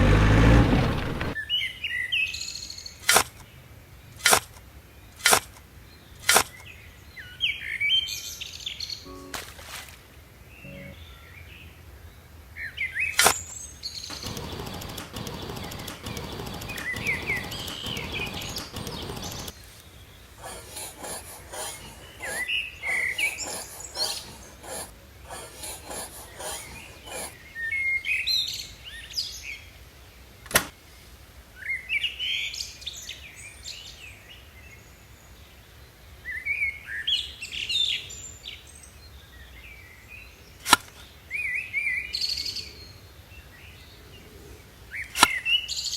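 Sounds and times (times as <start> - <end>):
sharp clicks: 3.0 - 3.4, 4.2 - 4.6, 6.2 - 6.6, 13.2 - 13.5, 14.1 - 19.6
small birds chirping: 12.7 - 29.3.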